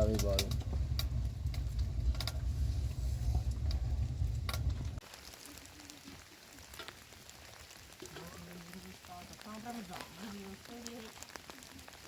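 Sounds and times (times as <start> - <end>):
heavy low rumble: 0.0 - 5.0
rain falling: 0.0 - 12.0.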